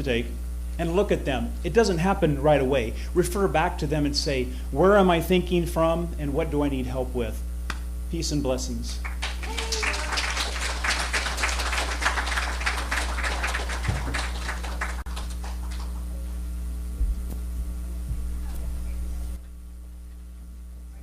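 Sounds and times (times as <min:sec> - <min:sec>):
steady electrical hum: 0:00.0 - 0:21.0
audience applauding: 0:09.0 - 0:16.2
soft thumps: 0:17.0 - 0:19.5.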